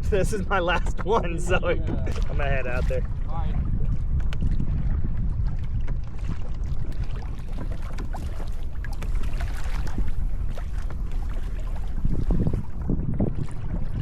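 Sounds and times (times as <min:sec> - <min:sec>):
water lapping against hull: 0:00.0 - 0:14.0
wind buffeting microphone: 0:00.0 - 0:14.0.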